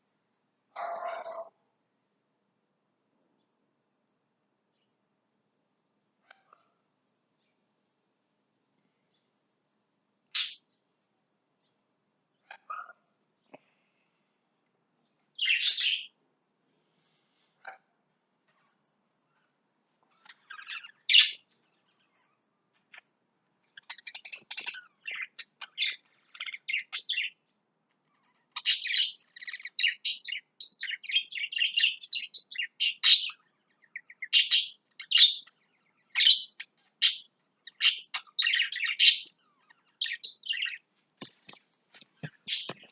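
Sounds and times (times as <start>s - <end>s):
lovebirds chirping: 10.3s - 10.9s, 15.0s - 16.2s, 18.5s - 42.9s.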